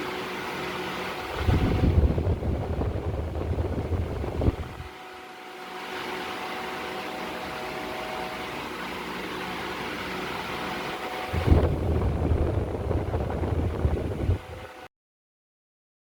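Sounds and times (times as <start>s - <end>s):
faint motor hum: 0.0s - 14.9s
tower fan whooshing: 0.0s - 14.9s
loud uneven low rumble: 1.2s - 4.9s, 11.3s - 14.6s.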